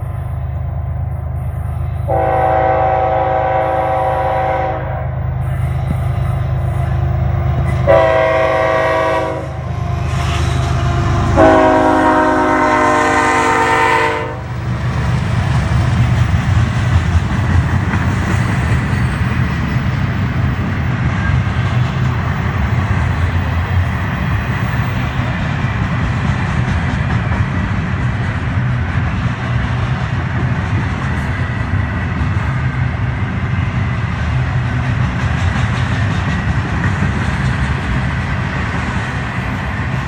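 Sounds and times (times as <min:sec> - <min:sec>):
train rumble and clatter: 0:00.0 - 0:40.0
locomotive air horn blasts: 0:02.1 - 0:05.2, 0:07.8 - 0:14.5.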